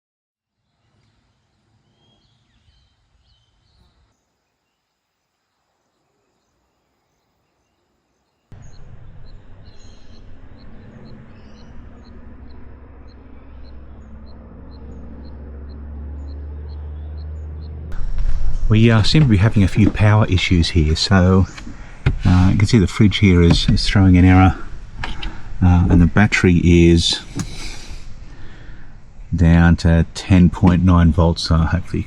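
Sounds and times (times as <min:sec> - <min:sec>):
high chirps: 0:08.4 - 0:18.8
low rumble and hiss: 0:08.5 - 0:15.6, 0:17.4 - 0:32.0.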